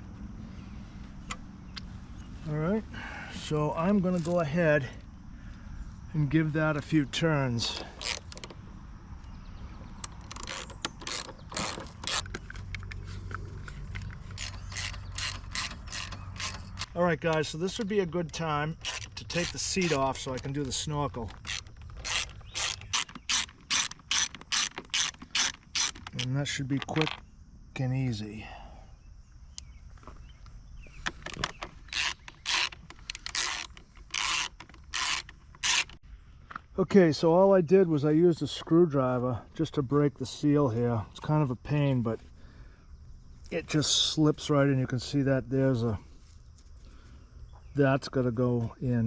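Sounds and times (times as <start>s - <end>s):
metallic clicks: 10.0s - 27.2s
ratchet wrench clicking: 14.0s - 16.9s, 21.4s - 26.2s, 31.8s - 36.0s.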